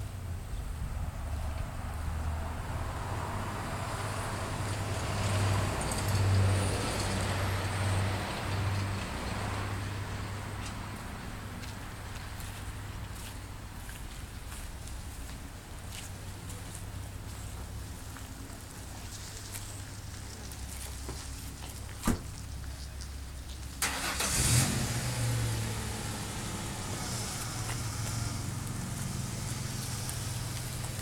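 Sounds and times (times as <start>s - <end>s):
car engine starting and idling: 23.8s - 31.0s.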